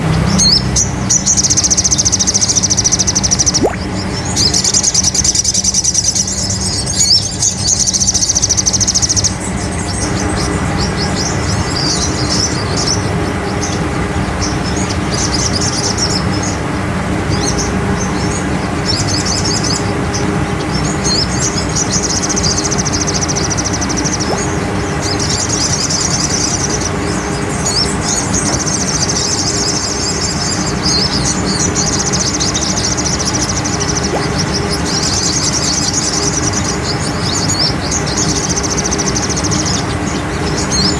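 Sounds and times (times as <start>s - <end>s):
bird high-pitched trill: 1.2s - 9.3s, 20.8s - 40.9s
steady low hum: 1.9s - 38.2s.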